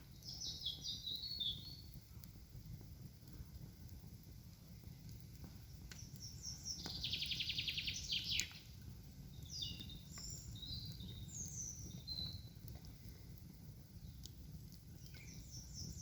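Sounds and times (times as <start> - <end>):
songbirds singing: 0.0 - 2.0, 5.8 - 13.1, 13.8 - 16.0
faint clicks: 5.0 - 7.4, 8.3 - 8.7, 12.0 - 15.4.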